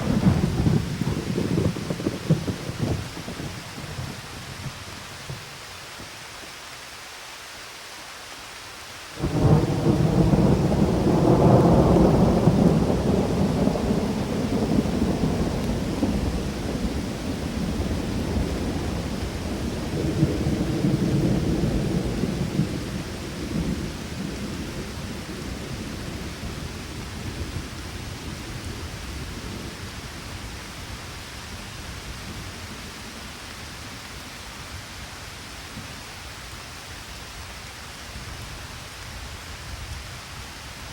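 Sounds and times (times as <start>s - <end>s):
thunder rolling: 0.0s - 5.6s, 9.2s - 27.7s
steady rain: 0.0s - 40.9s.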